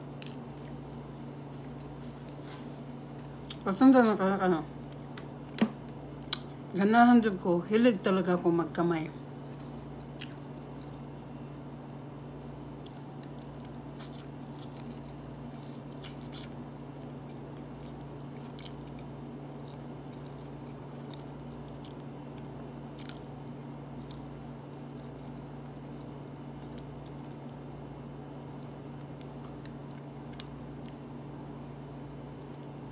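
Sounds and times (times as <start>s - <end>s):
steady low hum: 0.0s - 32.9s
person chewing and smacking: 0.1s - 0.8s, 1.4s - 3.6s, 9.9s - 11.9s, 12.7s - 27.8s, 28.4s - 31.2s.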